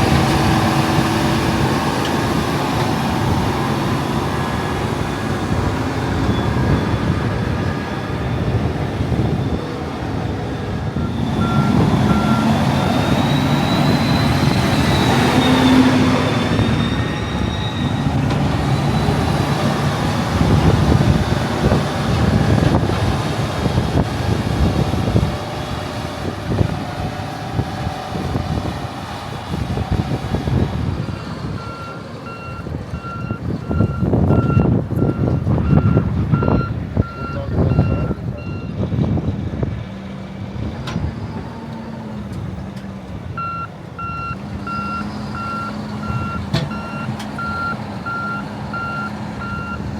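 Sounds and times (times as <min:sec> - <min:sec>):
diesel farm machinery running: 0:00.0 - 0:49.9
reversing alarm beeping: 0:10.9 - 0:19.7, 0:31.5 - 0:38.8, 0:43.4 - 0:49.9.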